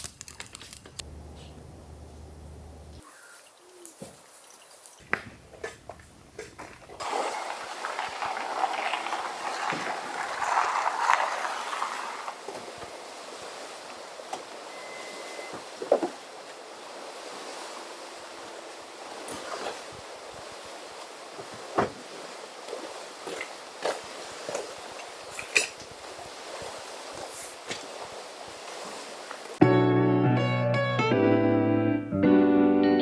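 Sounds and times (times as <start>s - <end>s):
small waves lapping shore: 7.0s - 29.6s.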